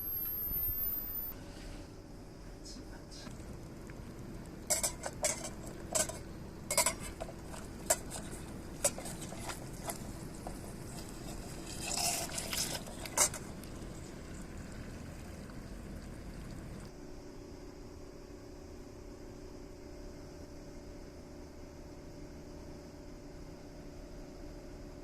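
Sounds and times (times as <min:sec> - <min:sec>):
metal utensils clinking on skillet: 0:04.7 - 0:10.0.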